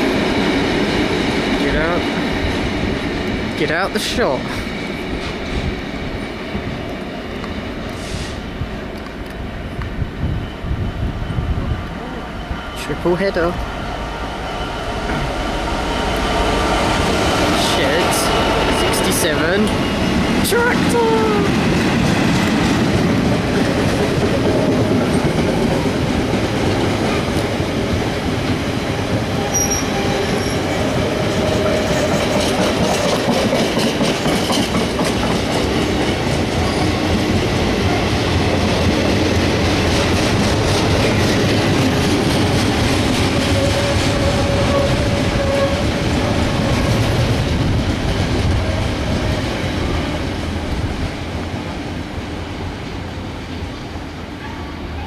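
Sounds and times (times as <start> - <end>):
train wheels clattering over rail joints: 21.6 - 49.8
wheel squeals: 29.4 - 30.8.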